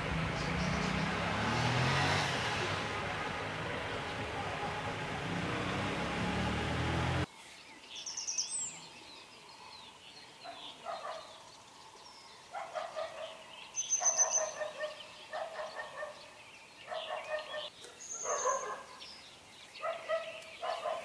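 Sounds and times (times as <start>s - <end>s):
lower repeated bird calls: 0.0s - 7.3s, 8.0s - 21.0s.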